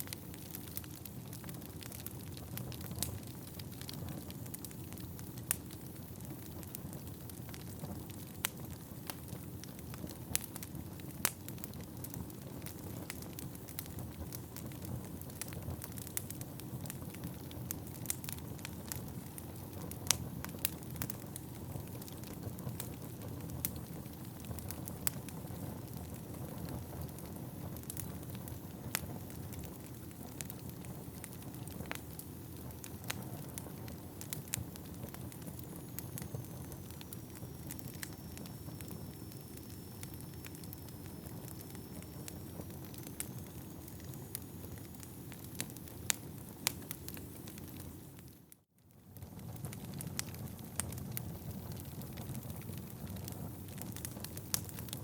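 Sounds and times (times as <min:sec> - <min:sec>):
crackles and pops of logs: 0:00.0 - 0:48.4, 0:49.1 - 0:55.0
wood fire burning: 0:00.0 - 0:55.0
faint high whistle: 0:35.5 - 0:45.4.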